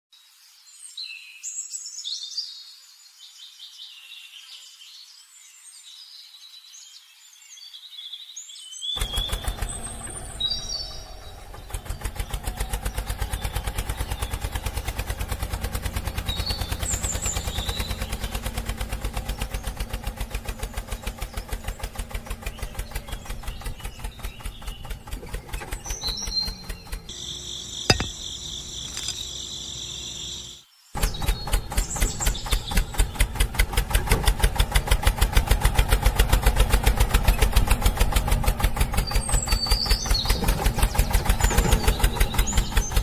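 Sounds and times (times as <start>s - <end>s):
birds chirping: 0.2s - 33.6s, 36.4s - 43.0s
crickets trilling: 27.1s - 30.6s.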